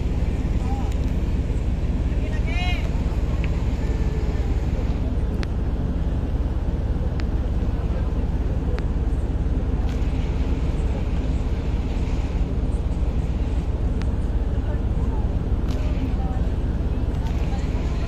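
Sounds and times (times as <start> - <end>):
ferry engine rumbling: 0.0 - 18.0
faint clicks: 9.8 - 10.1, 15.6 - 16.1, 17.1 - 17.6.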